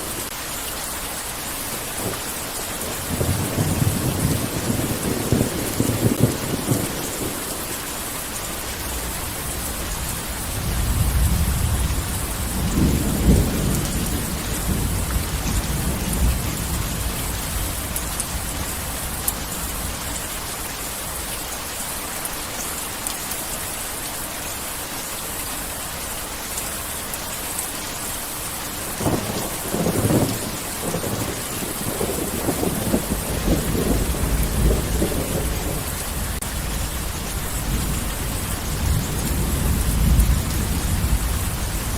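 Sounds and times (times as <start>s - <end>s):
heavy rain falling: 0.0s - 41.9s
rolling thunder: 3.0s - 7.4s, 8.9s - 20.0s, 29.0s - 41.9s.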